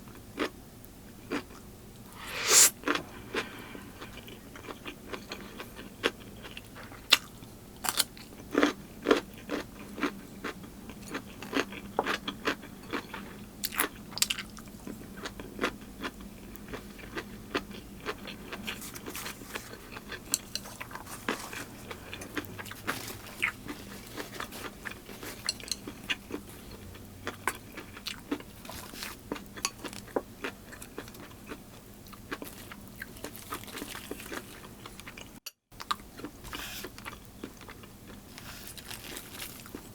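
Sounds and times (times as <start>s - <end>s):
person chewing crisp food: 1.3s - 39.9s.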